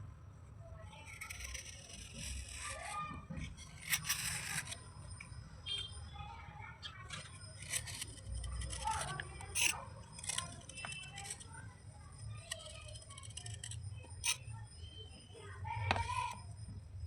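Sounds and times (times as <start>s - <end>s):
slate pieces crunching and scraping: 1.1s - 4.8s, 7.1s - 11.5s, 12.3s - 14.4s.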